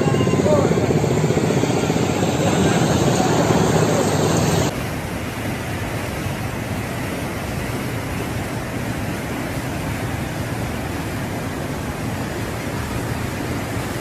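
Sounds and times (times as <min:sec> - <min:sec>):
engine drone: 0:00.0 - 0:04.7
floodwater rushing: 0:00.0 - 0:14.0.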